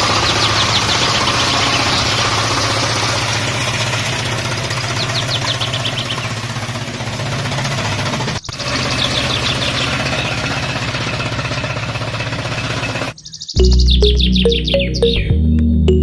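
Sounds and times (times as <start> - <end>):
bird chirps: 0.0 - 3.2, 4.7 - 6.5, 8.4 - 10.7, 13.1 - 16.0
engine idling: 0.0 - 13.2.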